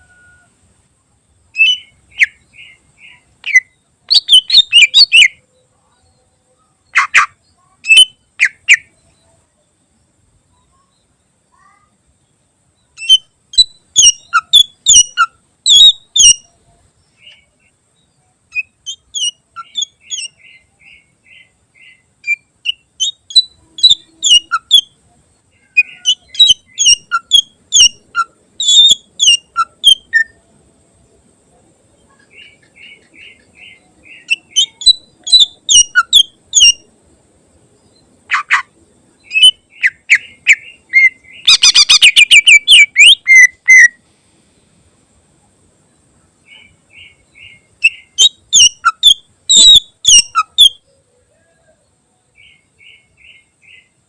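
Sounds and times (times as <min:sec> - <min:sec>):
bird singing sharp high notes: 0:38.3 - 0:44.0, 0:46.5 - 0:50.8.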